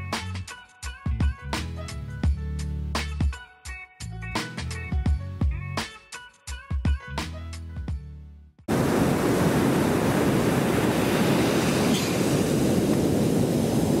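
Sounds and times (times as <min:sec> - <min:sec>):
background music: 0:00.0 - 0:08.6
ocean surf breaking: 0:08.7 - 0:14.0
wind: 0:08.7 - 0:14.0.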